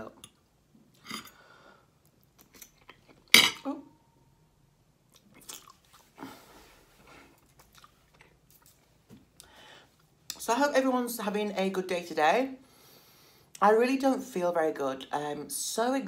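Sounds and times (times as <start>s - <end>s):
wet chewing sounds: 5.1s - 6.2s, 7.4s - 8.9s.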